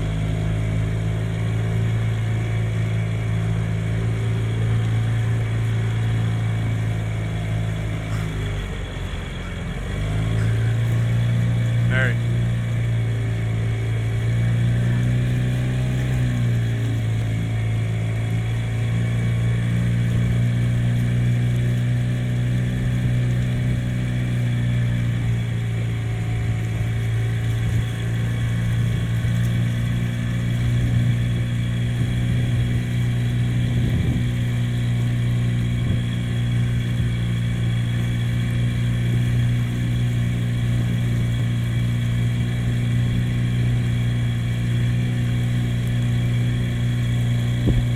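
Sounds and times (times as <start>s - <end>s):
low engine drone: 0.0s - 47.9s.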